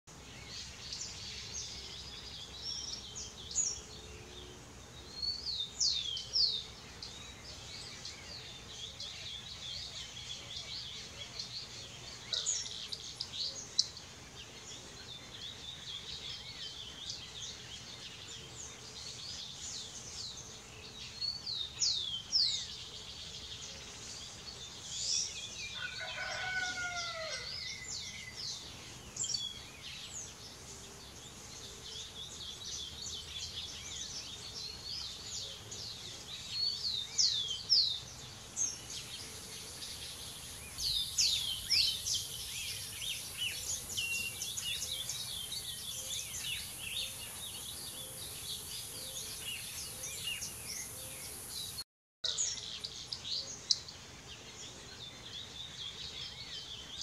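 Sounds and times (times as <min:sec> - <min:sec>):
birds chirping: 0:00.1 - 0:57.0
lower descending bird call: 0:25.8 - 0:28.4.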